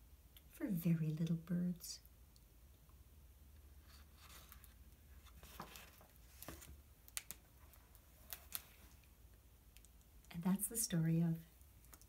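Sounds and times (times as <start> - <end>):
paper pages rustling: 3.9 - 9.0.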